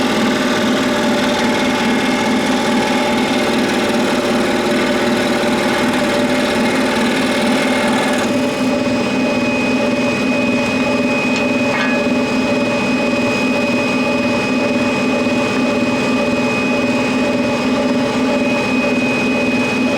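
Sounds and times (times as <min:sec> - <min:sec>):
scroll saw humming: 0:00.0 - 0:09.2.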